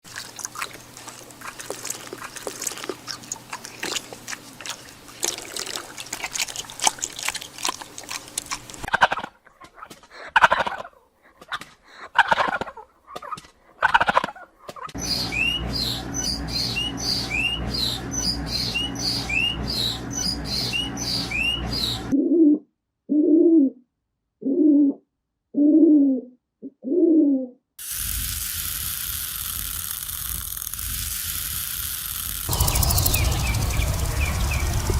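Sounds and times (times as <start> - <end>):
bird chirping with rising notes: 15.0 - 22.2, 32.5 - 34.9.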